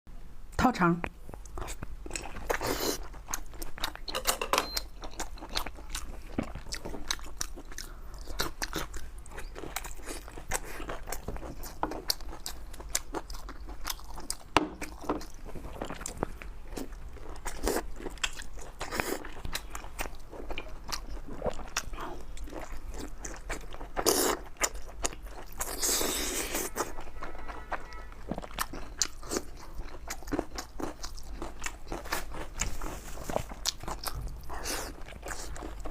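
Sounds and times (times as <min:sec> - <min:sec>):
biting and chewing: 0:01.3 - 0:35.9.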